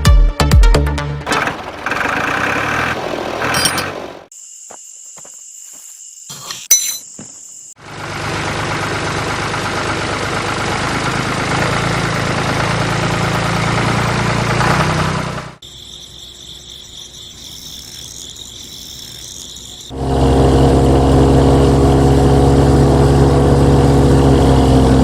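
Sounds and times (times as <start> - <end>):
high insect-like chirping: 4.3 - 7.8, 15.6 - 20.0
small motor humming: 15.6 - 25.0.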